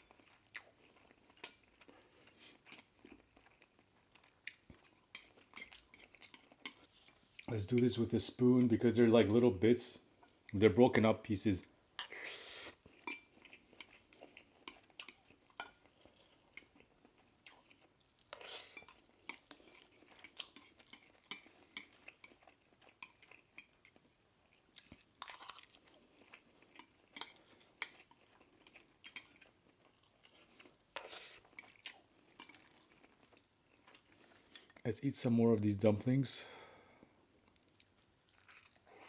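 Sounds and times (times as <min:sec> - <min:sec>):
soft chewing: 0:00.0 - 0:09.4, 0:10.0 - 0:10.6, 0:11.6 - 0:34.9, 0:36.9 - 0:39.0.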